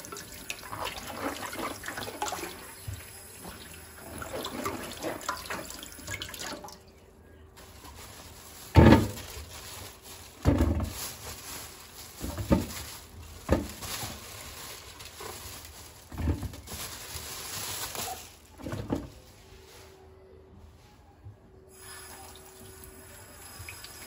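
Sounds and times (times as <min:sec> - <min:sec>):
rustling: 0:07.6 - 0:21.2
kitchen items knocking and thudding: 0:08.5 - 0:09.6, 0:10.3 - 0:14.4, 0:15.1 - 0:17.2, 0:18.0 - 0:19.3.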